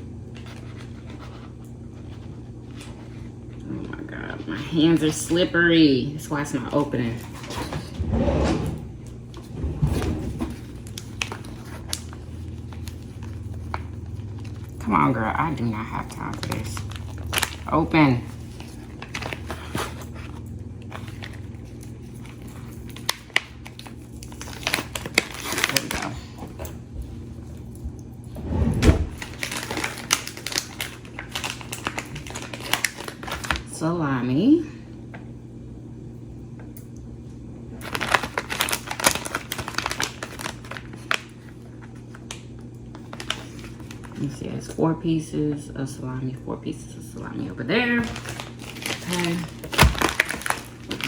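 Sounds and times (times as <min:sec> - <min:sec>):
steady low hum: 0:00.0 - 0:51.0
plastic packaging crinkling: 0:09.0 - 0:28.0, 0:29.1 - 0:33.7, 0:37.7 - 0:44.4, 0:47.8 - 0:51.0.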